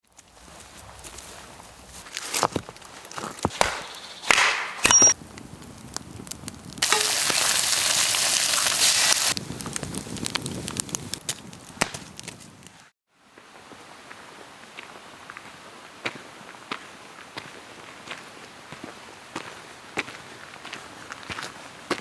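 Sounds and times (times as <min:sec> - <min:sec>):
campfire crackling and popping: 0:00.2 - 0:12.8.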